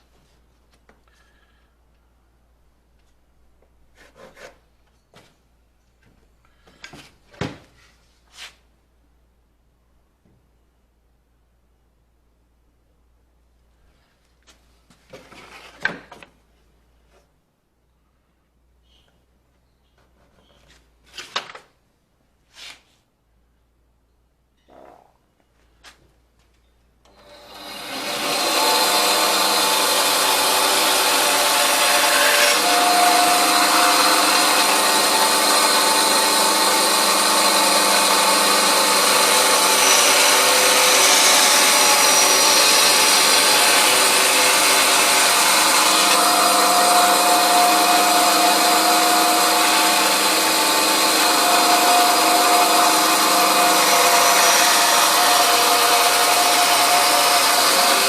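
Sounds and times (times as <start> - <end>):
power tool cutting wood: 27.1 - 58.0.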